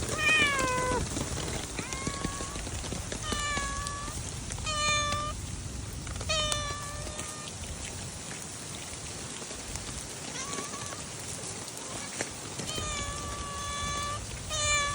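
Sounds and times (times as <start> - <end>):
rain hissing: 0.0 - 14.9
cat meowing: 0.1 - 1.0, 1.7 - 2.6, 3.2 - 5.4, 6.3 - 7.5, 11.8 - 14.9.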